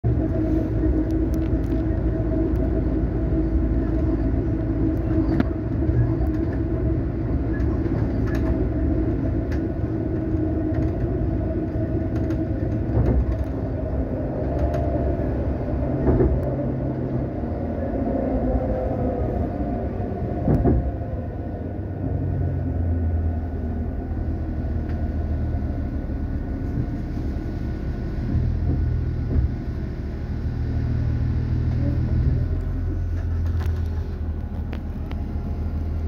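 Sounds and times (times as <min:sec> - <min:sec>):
low hum: 0:00.0 - 0:36.0
train wheels rumbling on rails: 0:00.0 - 0:36.0
track clicks and knocks: 0:12.0 - 0:13.8, 0:15.8 - 0:16.7, 0:20.4 - 0:21.0.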